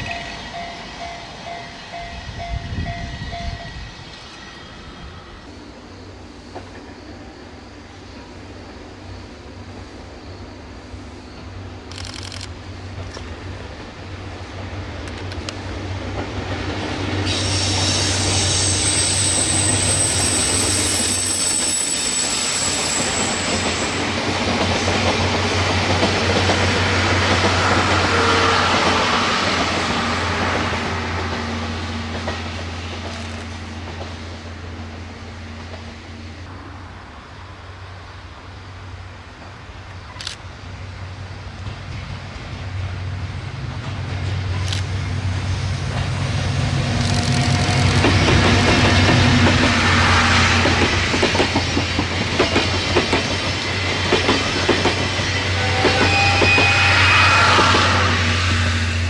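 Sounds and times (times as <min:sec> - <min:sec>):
high wheel squeal: 0:17.2 - 0:24.0, 0:55.1 - 0:59.0
train wheels clattering: 0:46.8 - 0:56.8.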